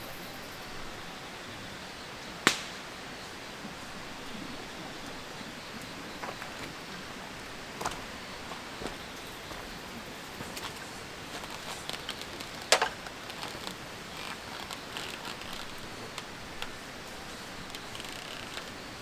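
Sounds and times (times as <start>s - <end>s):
campfire crackling and popping: 2.4s - 2.9s, 10.2s - 19.0s.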